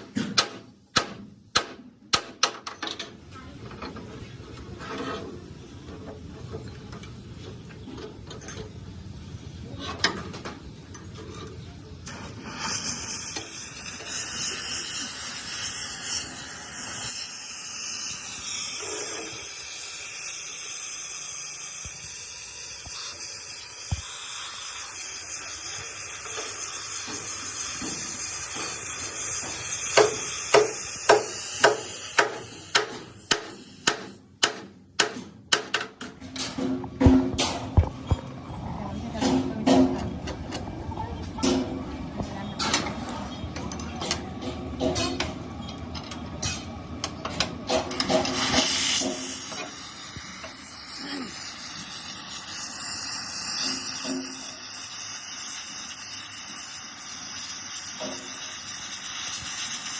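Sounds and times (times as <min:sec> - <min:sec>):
hammer striking metal: 0:00.0 - 0:02.9, 0:29.4 - 0:37.7
loud steady hiss: 0:11.8 - 0:34.5, 0:47.7 - 0:59.9.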